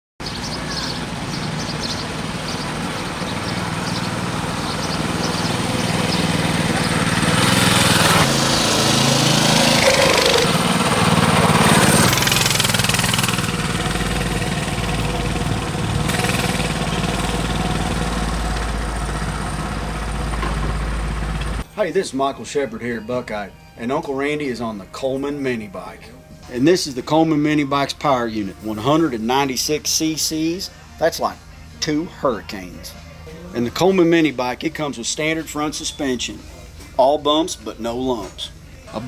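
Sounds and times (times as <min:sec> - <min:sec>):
mini bike engine running: 0:00.5 - 0:21.6.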